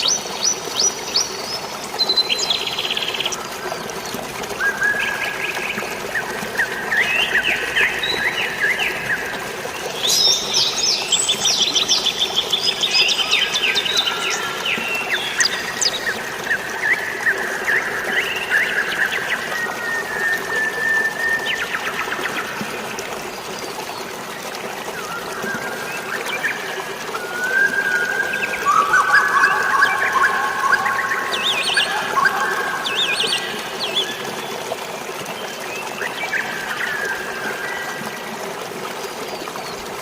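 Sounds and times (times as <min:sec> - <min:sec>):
flowing water rushing: 0:00.0 - 0:40.0
songbirds chirping and trilling: 0:27.7 - 0:34.4.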